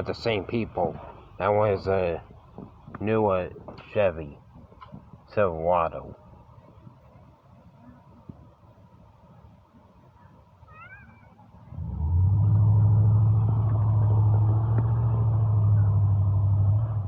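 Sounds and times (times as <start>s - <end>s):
vehicle engine running: 11.7s - 17.0s.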